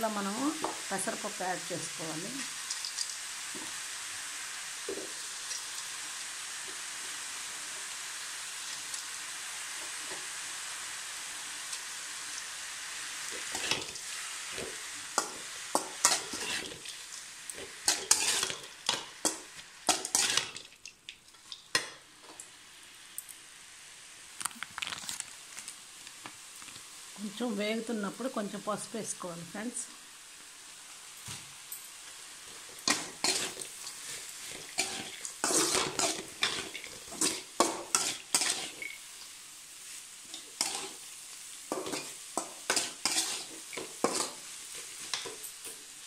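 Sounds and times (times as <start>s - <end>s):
food sizzling in metal pan: 0.0s - 46.0s
metal spatula scraping pan: 16.0s - 16.9s, 17.9s - 19.0s, 19.9s - 20.6s, 32.8s - 39.0s, 40.3s - 41.0s, 41.7s - 44.4s.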